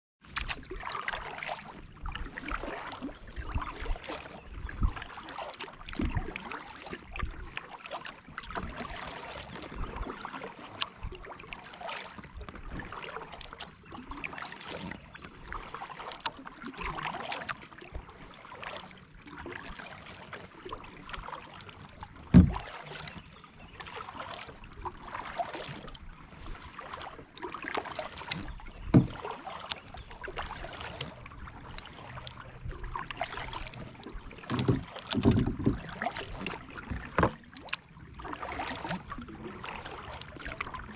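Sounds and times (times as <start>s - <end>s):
paddle strokes splashing water: 0.2s - 40.9s
sharp thumps: 22.4s - 22.6s.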